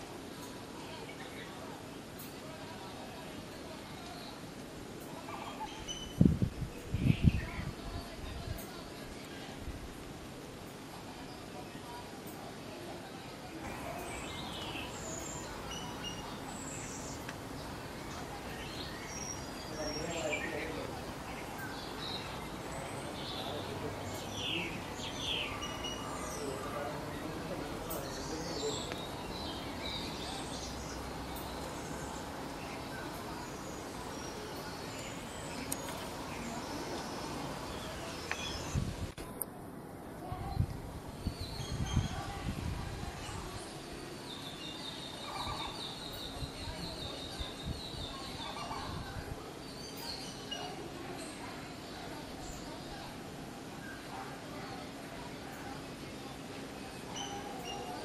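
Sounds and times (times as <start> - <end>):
outdoor background hiss: 0.0 - 58.0
small birds chirping: 10.6 - 39.2, 40.2 - 58.0.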